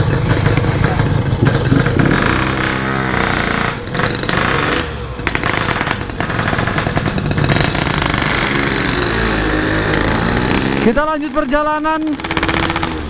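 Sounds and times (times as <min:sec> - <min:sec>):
engine knocking: 0:00.0 - 0:10.9, 0:12.0 - 0:13.0
motorcycle engine revving: 0:00.0 - 0:13.0.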